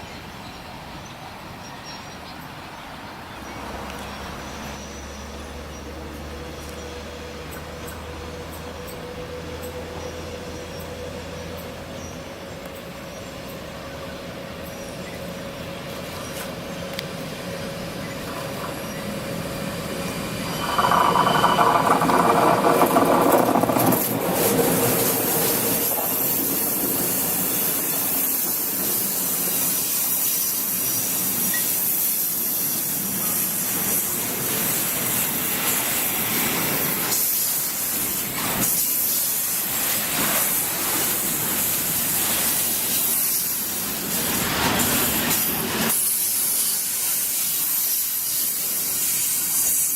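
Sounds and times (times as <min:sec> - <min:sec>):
train rushing: 0:02.5 - 0:49.9
loud pitched train sound: 0:04.2 - 0:49.9
wheels clicking on rails: 0:18.0 - 0:49.9.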